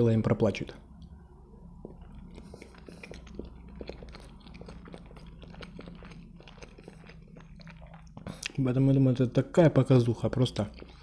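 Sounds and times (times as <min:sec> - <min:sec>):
man chewing: 0:01.7 - 0:08.7, 0:10.5 - 0:11.0.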